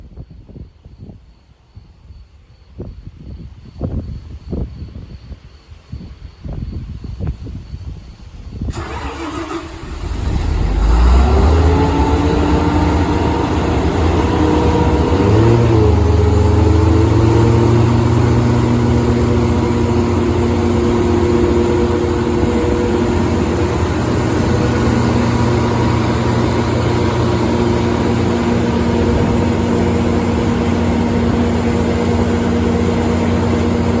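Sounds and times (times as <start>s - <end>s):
diesel generator running with whine: 8.6s - 34.0s
engine starter cranking: 8.7s - 15.9s.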